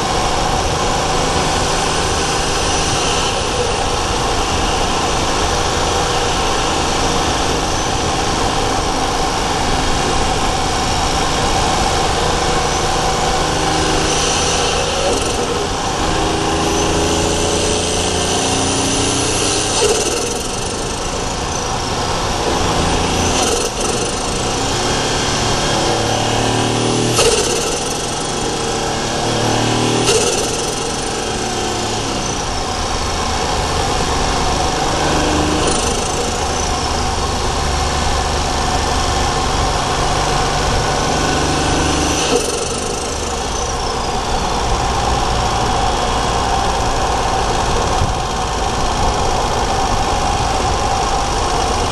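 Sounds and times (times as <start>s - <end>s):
engine pulling under load: 0.0s - 51.9s
sharp click: 19.3s - 21.8s, 23.2s - 24.9s, 27.1s - 28.7s, 30.0s - 32.5s, 35.5s - 37.2s, 42.1s - 43.8s.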